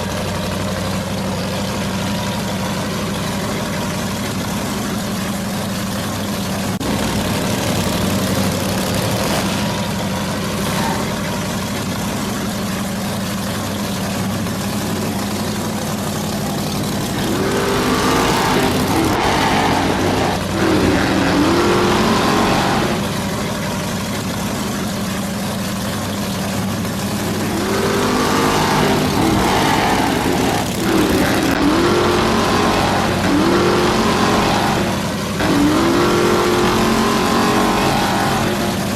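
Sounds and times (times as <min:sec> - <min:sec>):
low drone: 0:01.4 - 0:38.9
motor revving: 0:06.7 - 0:11.8, 0:14.6 - 0:24.9, 0:26.8 - 0:38.9.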